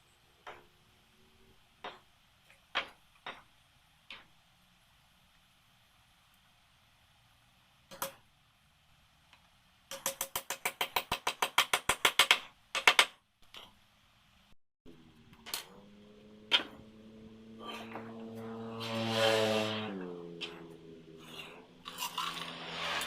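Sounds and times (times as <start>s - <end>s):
power tool motor humming: 17.3s - 20.8s.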